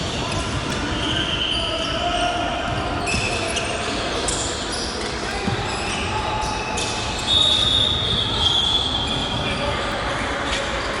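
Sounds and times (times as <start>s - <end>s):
referee's whistle: 0.8s - 9.8s.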